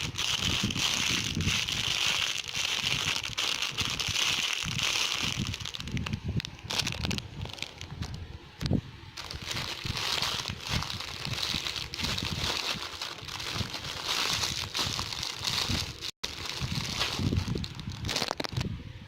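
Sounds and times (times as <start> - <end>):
plastic packaging crinkling: 0.0 - 8.2, 9.2 - 18.6.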